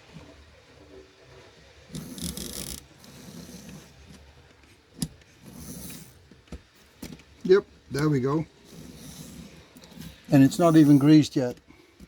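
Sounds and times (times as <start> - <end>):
small electric motor whirring: 1.9 - 4.1, 8.7 - 11.0.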